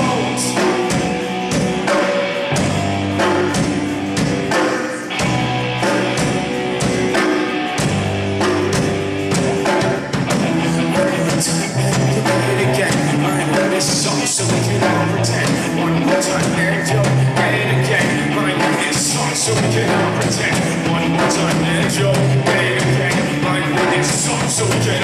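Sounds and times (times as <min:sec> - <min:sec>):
person singing: 0:00.0 - 0:02.7, 0:09.6 - 0:25.0
rock band playing live: 0:00.0 - 0:25.0.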